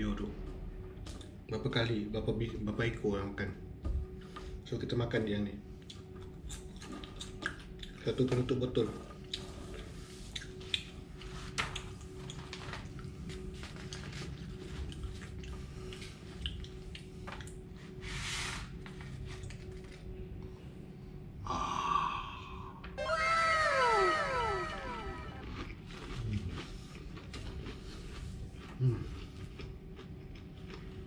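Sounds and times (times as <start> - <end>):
chewing crunchy food: 5.8 - 18.0, 25.4 - 31.0.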